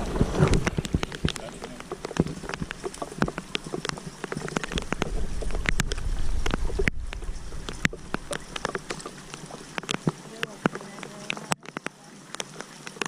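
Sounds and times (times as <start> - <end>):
rain falling: 0.0 - 13.0
raindrops ticking near microphone: 0.0 - 13.0
low rumble: 4.7 - 9.3.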